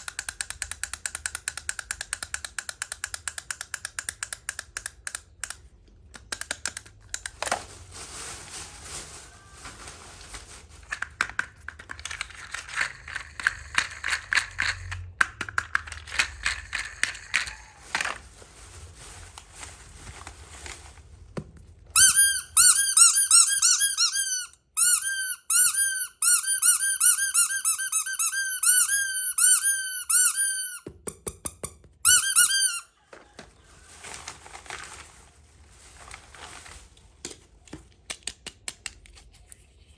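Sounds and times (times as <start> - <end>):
plastic toy pieces clicking: 0.0 - 7.4, 10.9 - 17.6
loud high squeaks: 22.0 - 30.8, 32.1 - 32.9.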